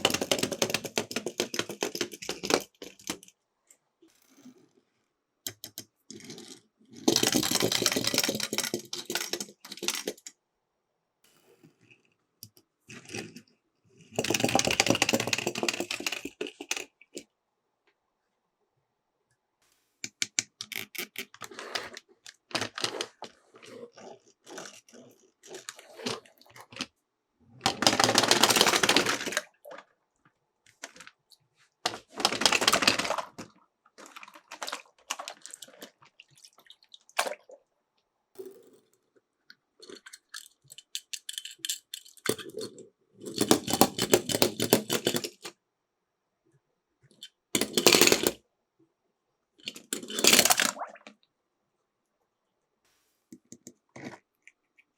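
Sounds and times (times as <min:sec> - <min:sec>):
toy cars clicking and clattering: 0:00.0 - 0:03.4, 0:05.5 - 0:10.4, 0:14.1 - 0:17.2, 0:20.1 - 0:23.4, 0:27.6 - 0:29.6, 0:31.9 - 0:35.9, 0:39.8 - 0:45.5, 0:47.1 - 0:48.4, 0:49.6 - 0:50.8
toy cars rolling down a slope: 0:00.0 - 0:03.4, 0:05.5 - 0:10.3, 0:14.1 - 0:17.0, 0:27.6 - 0:29.8, 0:31.9 - 0:33.6, 0:39.9 - 0:45.5, 0:47.6 - 0:48.4, 0:49.7 - 0:50.8.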